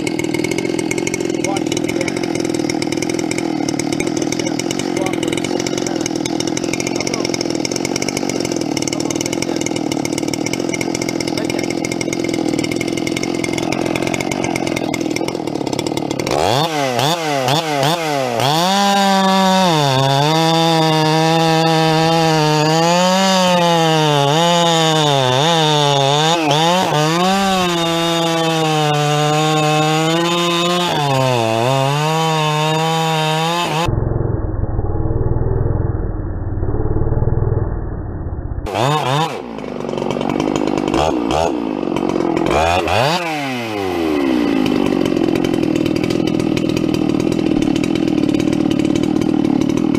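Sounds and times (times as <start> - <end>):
chainsaw cutting wood: 0.0 - 33.9, 38.7 - 49.9
dull muffled low sound: 33.9 - 38.7.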